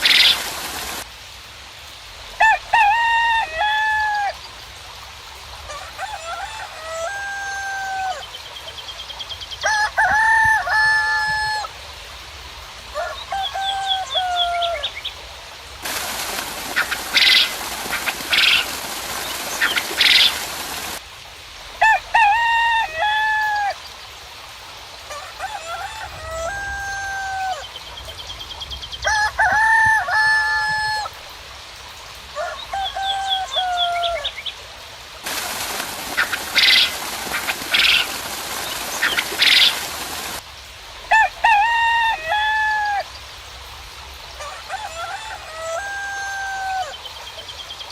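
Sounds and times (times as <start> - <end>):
rain hiss: 0.0 - 47.9
roosters crowing: 2.4 - 4.4, 5.7 - 8.3, 9.6 - 11.7, 12.9 - 14.9, 15.8 - 21.0, 21.8 - 23.8, 25.1 - 27.8, 29.0 - 31.2, 32.3 - 34.4, 35.2 - 40.4, 41.1 - 43.1, 44.4 - 47.0.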